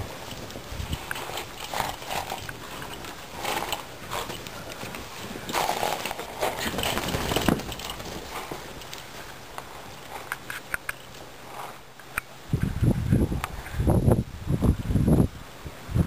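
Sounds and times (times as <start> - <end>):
muffled hooves in snow: 0.0 - 11.9.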